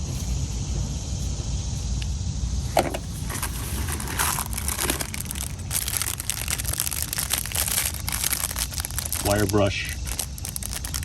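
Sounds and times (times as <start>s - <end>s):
plastic packaging crinkling: 3.2s - 11.0s.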